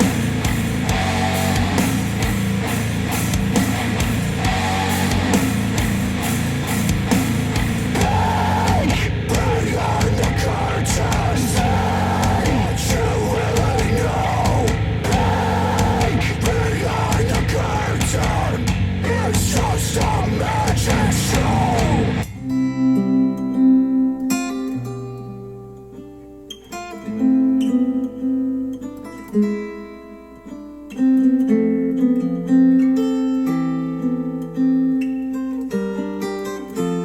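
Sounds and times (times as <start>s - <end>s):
rock music with singing: 0.0s - 22.3s
plucked acoustic guitar: 0.0s - 37.0s.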